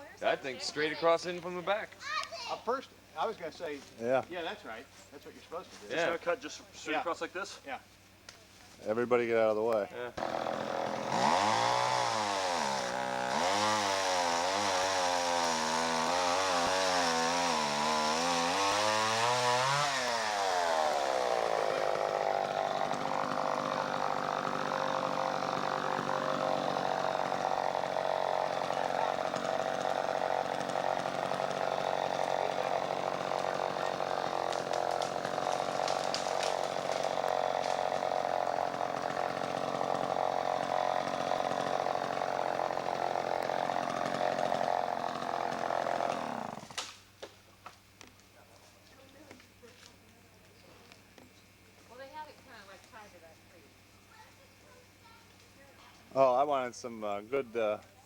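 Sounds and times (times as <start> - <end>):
chainsaw cutting wood: 10.2 - 47.3.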